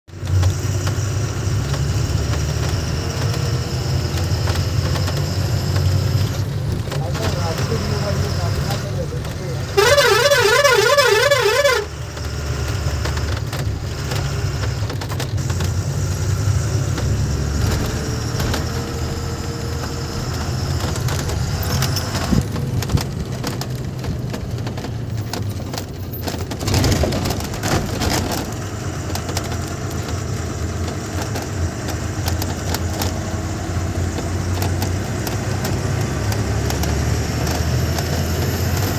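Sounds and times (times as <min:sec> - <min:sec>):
truck diesel engine droning: 0:00.1 - 0:38.9
clicks and rattles: 0:11.6 - 0:15.8, 0:19.7 - 0:38.9.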